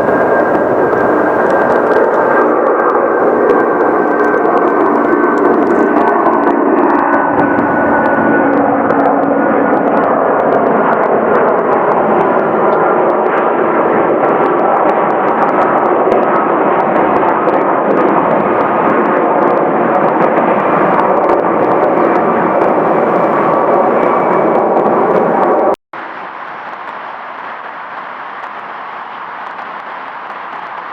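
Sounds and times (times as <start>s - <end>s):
jet engines roaring: 0.0s - 30.9s.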